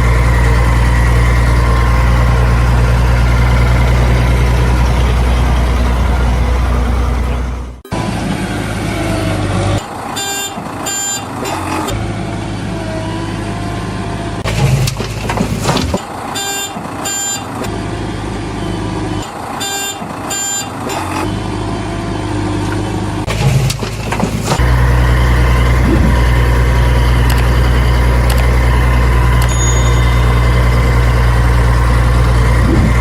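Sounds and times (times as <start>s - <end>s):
heavy vehicle engine running: 0.0s - 33.0s
short high beeps: 29.4s - 31.0s.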